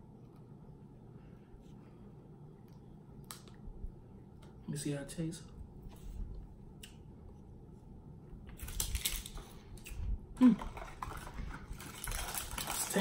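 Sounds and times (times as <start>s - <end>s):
paper packet tearing: 11.0s - 13.0s.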